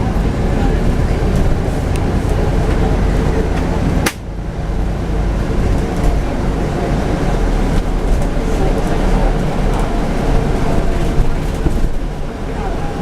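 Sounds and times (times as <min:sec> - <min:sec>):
bus engine and road rumble: 0:00.0 - 0:13.0
sharp click: 0:04.0 - 0:04.2.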